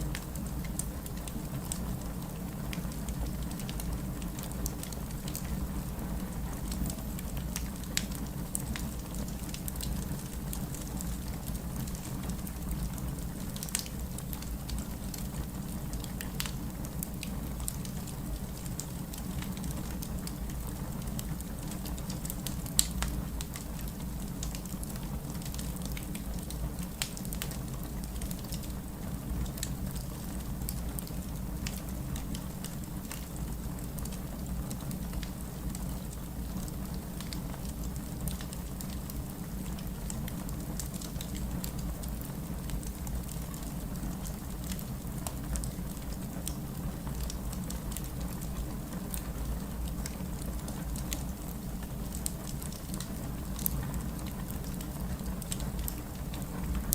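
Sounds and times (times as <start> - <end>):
wood fire pops and snaps: 21.3 - 23.6, 35.2 - 49.3, 52.1 - 56.9.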